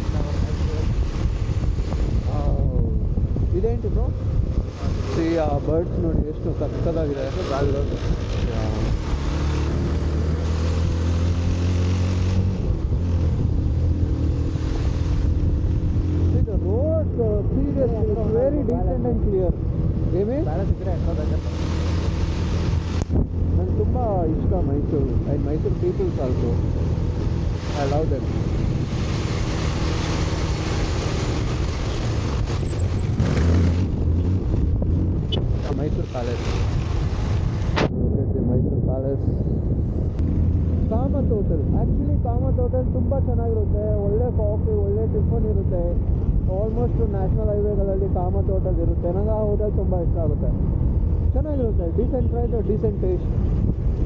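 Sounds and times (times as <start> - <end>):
motorcycle engine cruising: 0.0 - 37.9
wind rushing over microphone: 0.0 - 54.0.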